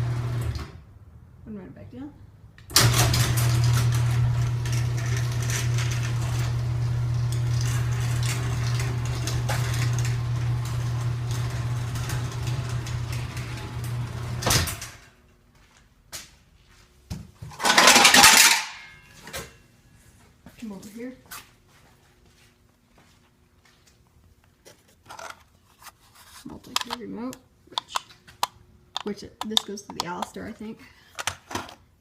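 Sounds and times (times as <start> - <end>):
garage door opener motor hum: 0.0 - 0.8, 2.7 - 15.2.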